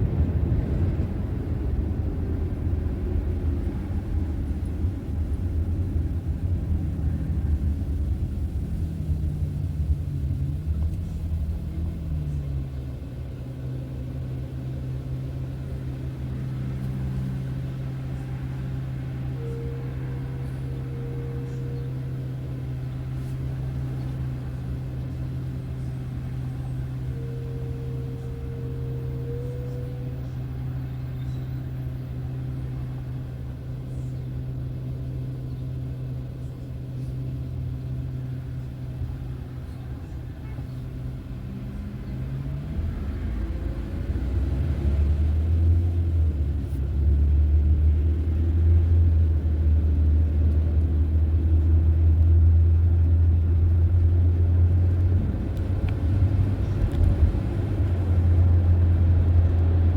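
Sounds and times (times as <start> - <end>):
car engine and road noise: 0.0 - 59.9
low hum: 0.0 - 59.9
faint higher tone: 16.2 - 34.3.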